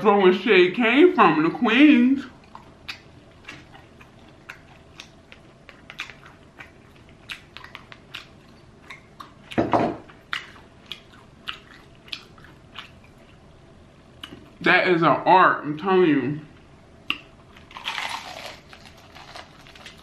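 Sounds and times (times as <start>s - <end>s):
crunchy chewing of fried chicken: 2.2s - 14.3s, 17.2s - 20.0s.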